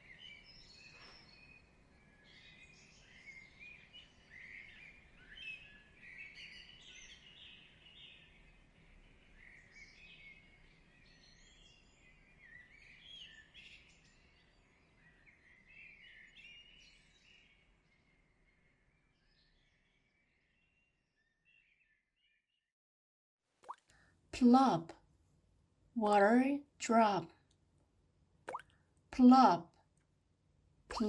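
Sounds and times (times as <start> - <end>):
faint birdsong chirps and trills: 0.0 - 22.4.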